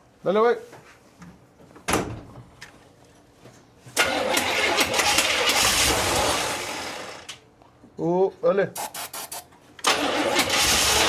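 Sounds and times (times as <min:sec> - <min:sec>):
engine starter cranking: 0:04.0 - 0:07.3, 0:09.8 - 0:11.0.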